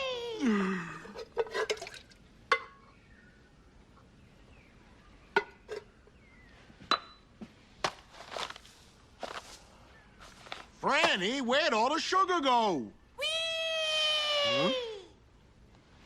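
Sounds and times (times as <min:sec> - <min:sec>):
kitchen dishes clinking and knocking: 0:01.2 - 0:02.8, 0:05.4 - 0:05.9.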